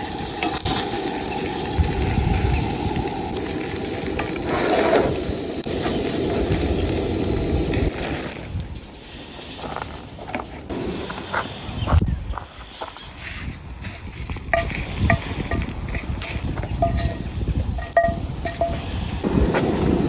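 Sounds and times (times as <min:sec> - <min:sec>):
food sizzling in a frying pan: 0:00.0 - 0:08.0.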